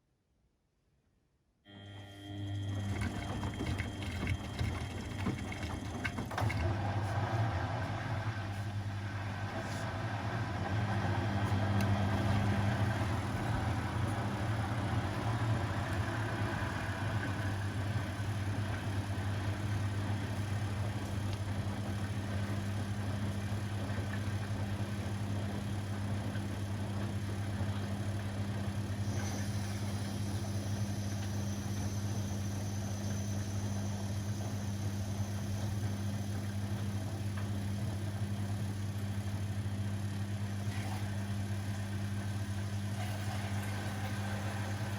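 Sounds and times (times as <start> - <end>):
motor hum: 1.7 - 44.9.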